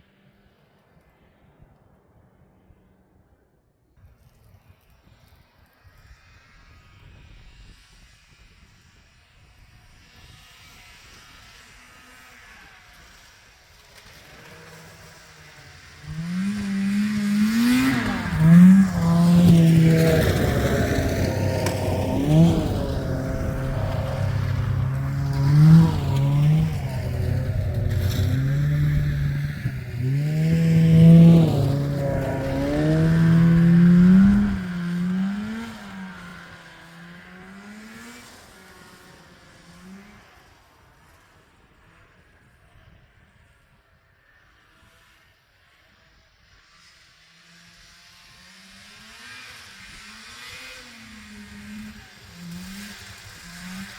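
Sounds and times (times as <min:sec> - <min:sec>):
snowmobile engine revving: 0:08.7 - 0:42.5, 0:46.7 - 0:53.9.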